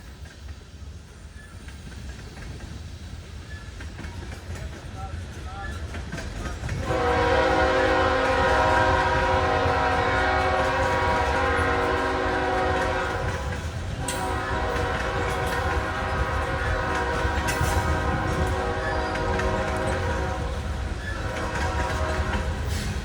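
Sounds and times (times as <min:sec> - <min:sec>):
rumble of passing train: 0:00.0 - 0:23.0
locomotive air horn: 0:06.7 - 0:23.0.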